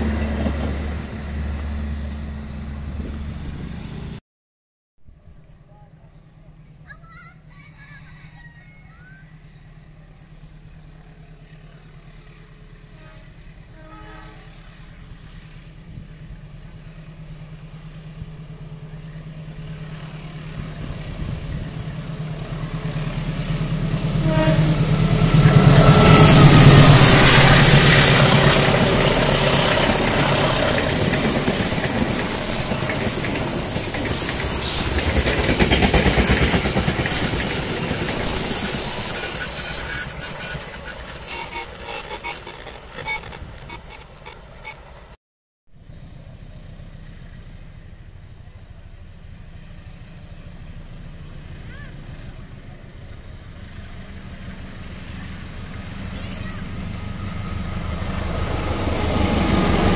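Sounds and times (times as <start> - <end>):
train wheels rushing on rail: 0.0 - 3.9, 14.5 - 45.2, 53.8 - 59.9
locomotive engine drone: 0.0 - 4.2, 14.4 - 45.2, 53.0 - 59.9.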